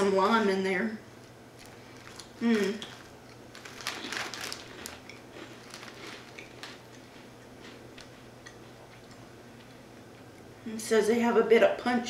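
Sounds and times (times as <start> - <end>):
chewing crunchy chips: 1.2 - 10.4
snack packet crinkling: 1.5 - 8.7.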